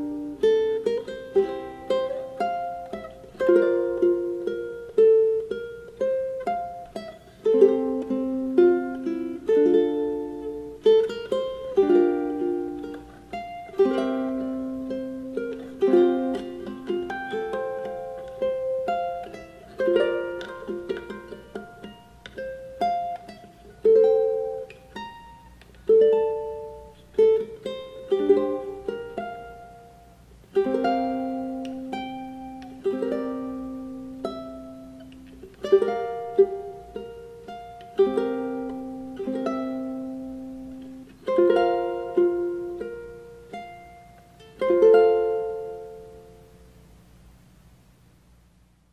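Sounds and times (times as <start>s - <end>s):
ukulele chords strummed: 0.0s - 47.0s.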